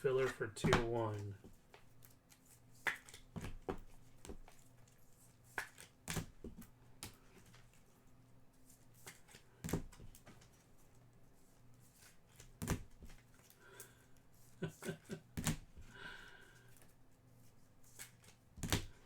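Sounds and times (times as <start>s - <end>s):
cards clicking and rustling: 0.2s - 7.9s, 8.7s - 10.9s, 11.8s - 14.0s, 17.8s - 19.0s.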